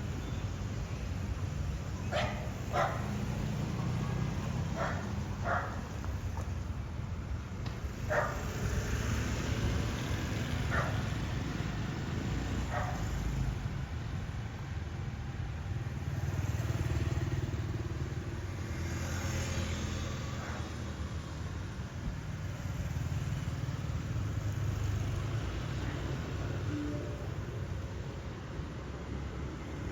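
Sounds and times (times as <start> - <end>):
street traffic rumble: 0.0 - 29.9
dog barking: 2.0 - 5.9, 8.1 - 8.5, 10.7 - 11.1, 12.6 - 13.1, 20.4 - 20.7.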